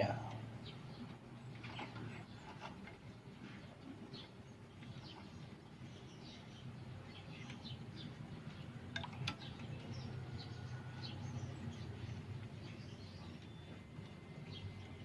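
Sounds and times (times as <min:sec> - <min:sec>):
low steady hum: 0:00.0 - 0:15.0
faint bird chirps: 0:09.4 - 0:15.0.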